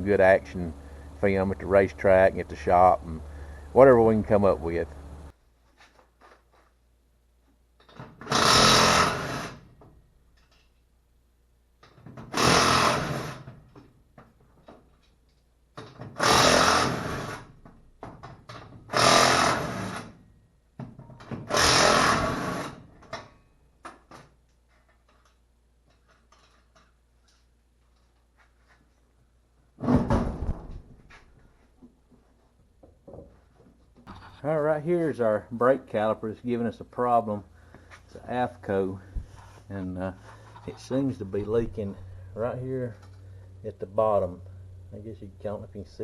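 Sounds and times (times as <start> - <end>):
power tool running: 8.2 - 9.6, 12.3 - 13.5, 16.2 - 17.5, 18.9 - 20.1, 21.5 - 22.8
small clicks and knocks: 9.8 - 10.9, 23.0 - 29.0.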